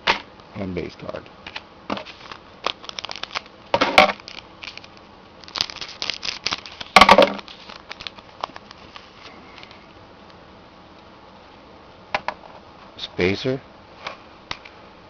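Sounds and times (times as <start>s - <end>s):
cards clicking and rustling: 1.5s - 9.8s
card pack wrapper tearing and crinkling: 2.0s - 9.7s.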